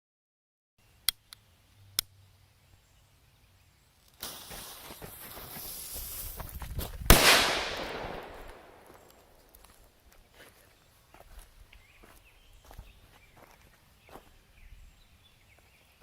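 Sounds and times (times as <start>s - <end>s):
firecracker bang: 7.1s - 9.0s.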